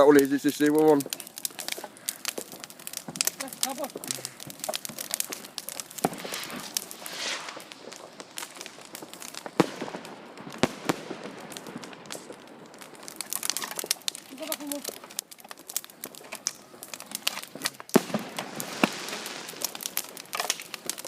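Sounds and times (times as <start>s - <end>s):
bonfire crackling and popping: 0.0s - 21.0s
brief rushing hiss: 6.0s - 8.1s.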